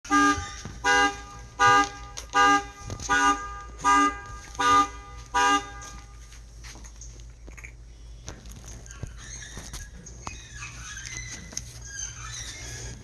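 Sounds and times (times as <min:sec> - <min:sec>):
vehicle horn honking: 0:00.0 - 0:06.3.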